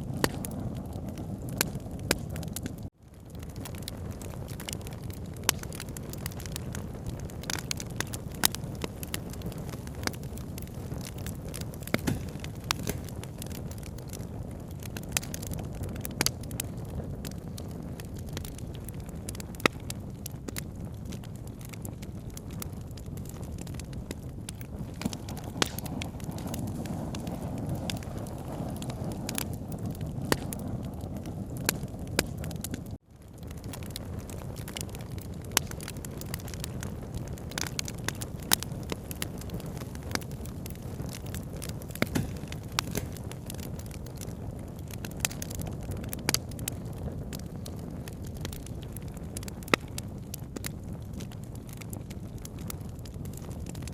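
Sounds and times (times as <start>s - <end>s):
campfire crackling and popping: 0.0s - 53.9s
low rumble of fire: 0.0s - 53.9s.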